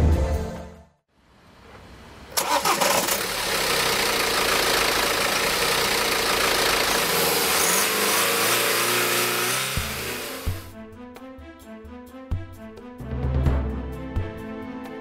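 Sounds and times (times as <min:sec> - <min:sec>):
diesel engine starting and idling: 0:01.6 - 0:10.7.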